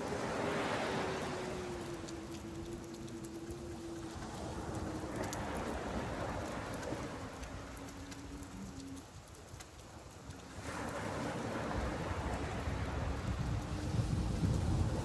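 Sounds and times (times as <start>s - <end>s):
low humming tone: 0.0s - 9.5s
rain falling steadily: 0.0s - 15.0s
drop ticks: 1.2s - 4.1s.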